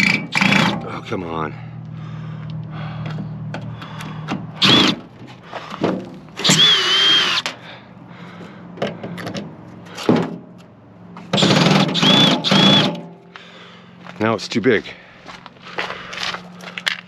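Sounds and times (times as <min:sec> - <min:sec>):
power drill motor whine: 0:04.6 - 0:05.0, 0:06.4 - 0:07.5, 0:11.4 - 0:12.9.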